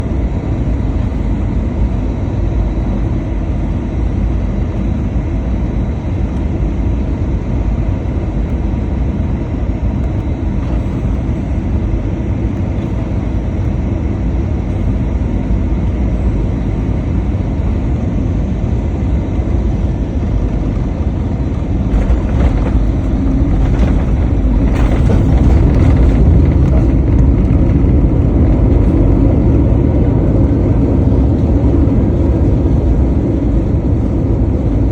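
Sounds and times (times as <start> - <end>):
airliner cabin engine roar: 0.0 - 34.9
cabin rattling: 21.6 - 29.6.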